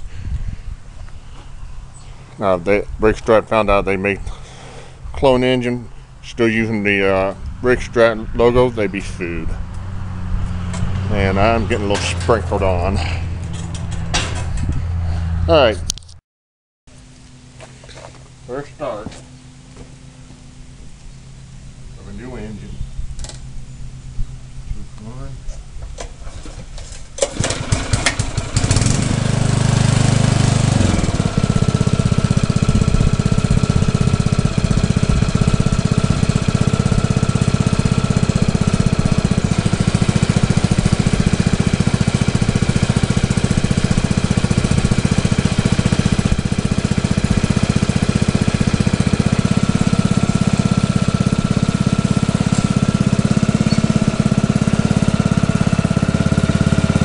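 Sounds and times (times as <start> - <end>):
small engine starting and running: 26.0 - 57.0.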